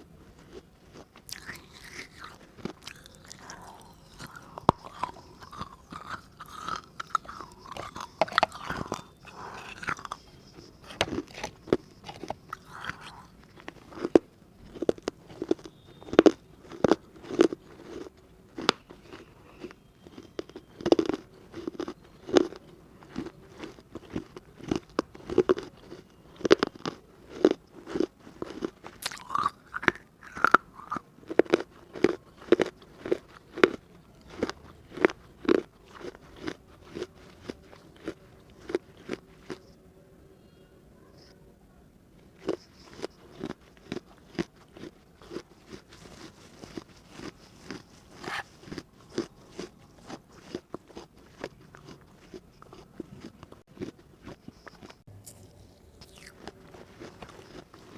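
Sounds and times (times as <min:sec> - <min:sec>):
crunching baked clay: 0:00.0 - 0:39.7, 0:42.2 - 0:57.9.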